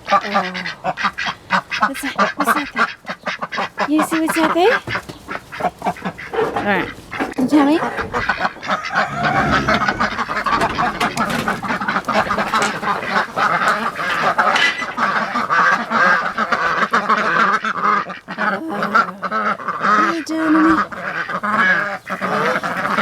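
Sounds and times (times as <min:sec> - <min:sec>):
ducks quacking: 0:00.0 - 0:23.0.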